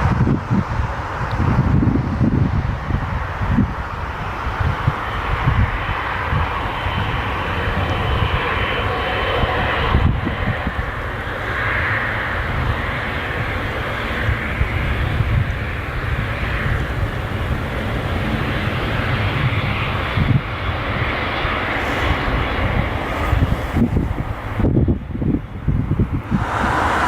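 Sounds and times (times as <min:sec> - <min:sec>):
deep uneven rumble: 0:00.0 - 0:27.0
jet engines rushing: 0:00.0 - 0:27.0.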